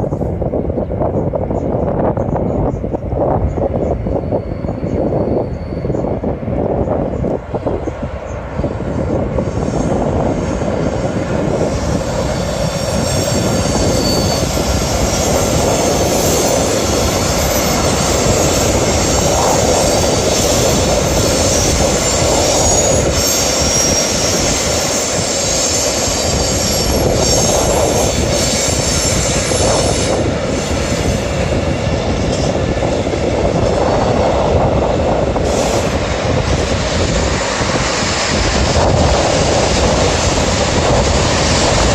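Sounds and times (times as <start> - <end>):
train rumbling on rails: 0.0 - 41.9
wheel squeal: 3.8 - 6.2, 11.7 - 32.6.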